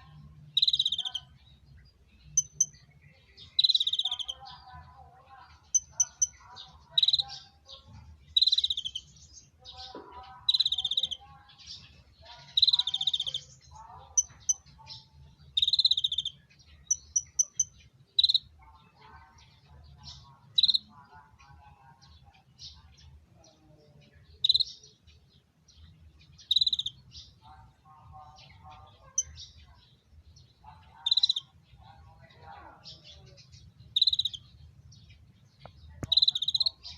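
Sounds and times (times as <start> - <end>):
soft bird twittering: 0.0 - 27.4, 28.2 - 31.9, 32.8 - 36.9
buzzy bird trills: 0.5 - 1.3, 2.3 - 2.8, 3.4 - 4.6, 5.6 - 7.6, 8.3 - 9.2, 10.4 - 11.3, 12.4 - 15.0, 15.6 - 18.5
high bird pips: 35.6 - 36.9.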